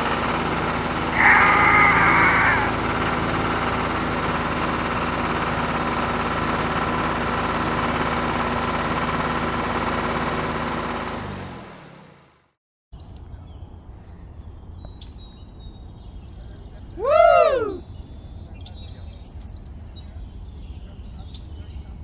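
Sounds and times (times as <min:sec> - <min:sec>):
engine idling: 0:00.0 - 0:12.5.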